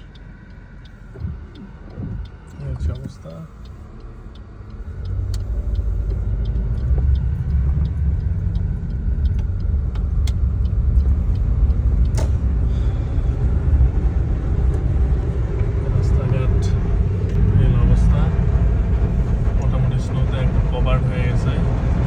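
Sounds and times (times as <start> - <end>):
faint clicks: 0.0 - 17.4
motor vehicle rumble: 0.0 - 22.0.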